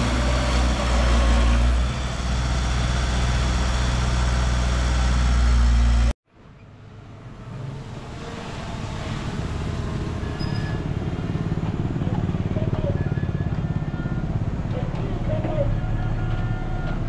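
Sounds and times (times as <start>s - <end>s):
diesel machinery engine humming: 0.0s - 6.1s, 7.0s - 17.0s.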